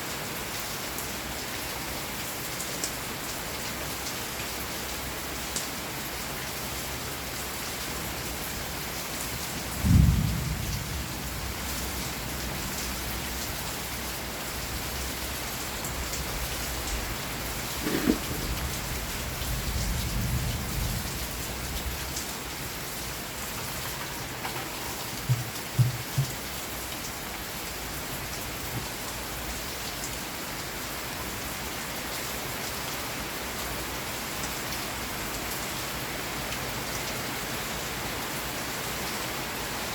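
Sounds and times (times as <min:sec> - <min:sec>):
heavy rain: 0:00.0 - 0:39.9
thunder: 0:09.7 - 0:12.9
low thumps: 0:25.1 - 0:26.4.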